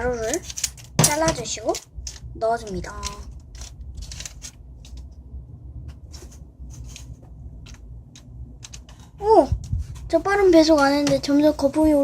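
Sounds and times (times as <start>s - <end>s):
paper packet crinkling: 1.9s - 5.1s.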